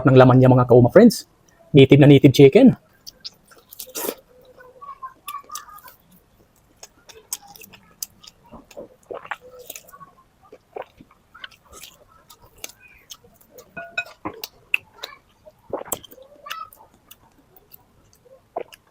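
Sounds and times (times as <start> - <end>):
wet mouth clicks: 3.0 - 4.2
person chewing meat: 5.3 - 18.9.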